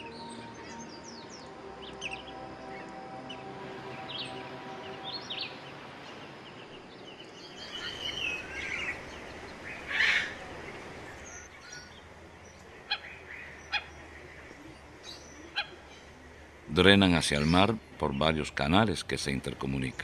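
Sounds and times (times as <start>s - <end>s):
soft background music: 0.0s - 9.7s
birds chirping and whistling: 0.0s - 10.4s.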